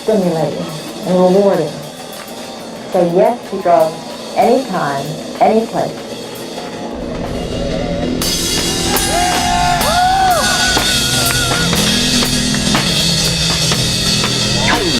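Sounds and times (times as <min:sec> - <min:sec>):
rock band playing: 0:06.4 - 0:14.9.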